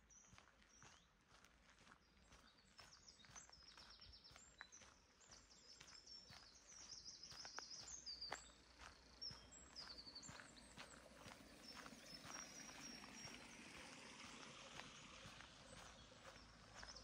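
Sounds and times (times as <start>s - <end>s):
soft footsteps on path: 0.0s - 17.0s
songbirds singing: 0.0s - 17.0s.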